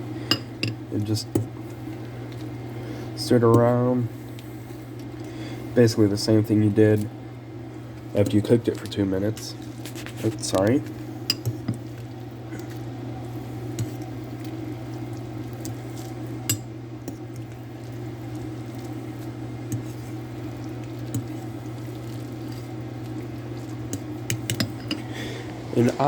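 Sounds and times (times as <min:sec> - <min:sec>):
steady low hum: 0:00.0 - 0:26.0
wet squishing of noodles: 0:11.8 - 0:16.4, 0:17.0 - 0:24.5
utensil clinking against bowl: 0:23.9 - 0:25.1.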